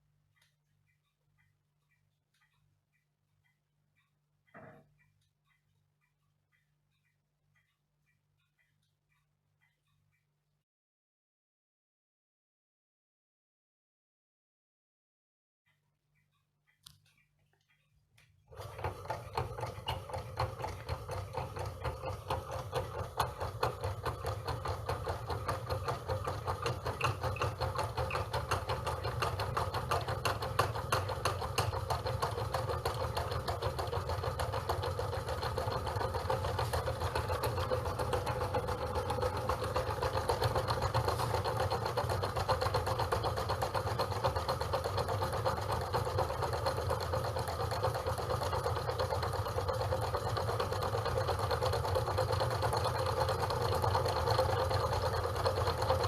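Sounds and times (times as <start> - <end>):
model engine mechanical clatter: 18.5 - 56.0.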